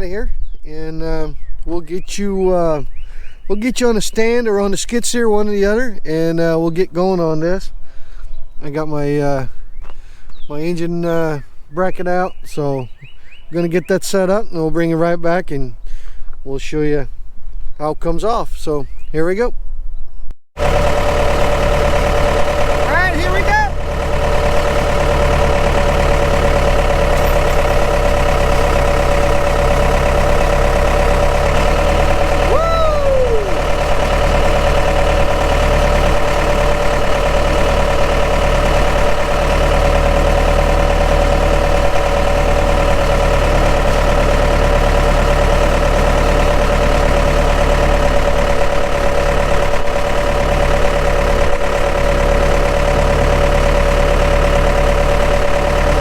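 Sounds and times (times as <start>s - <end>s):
engine idling: 20.6s - 56.0s
short falling squeak: 26.6s - 29.4s.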